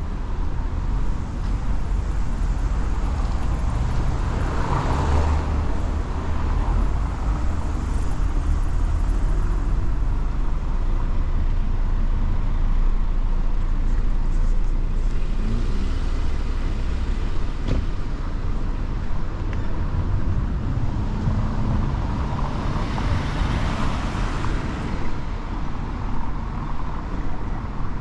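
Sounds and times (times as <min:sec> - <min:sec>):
traffic low rumble: 0:00.0 - 0:28.0.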